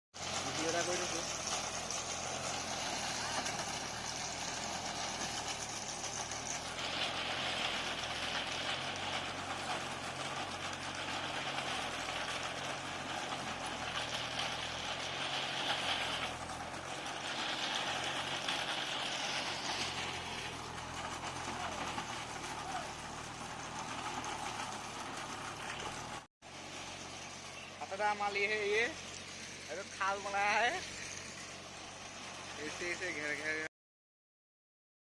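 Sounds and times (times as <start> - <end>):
tractor diesel engine running: 0.2 - 33.7
high-pitched hiss or whine: 26.9 - 33.6.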